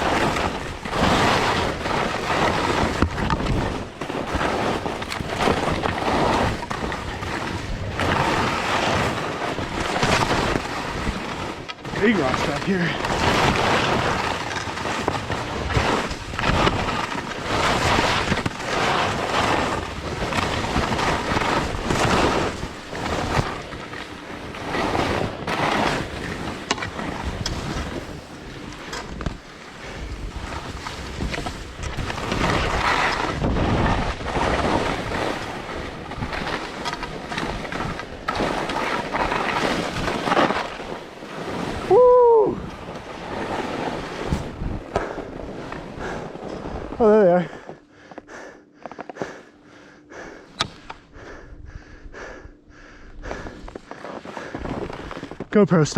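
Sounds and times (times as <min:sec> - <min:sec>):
skis scraping on snow: 0:00.0 - 0:47.8, 0:53.3 - 0:55.9
wind rushing over microphone: 0:24.4 - 0:36.6.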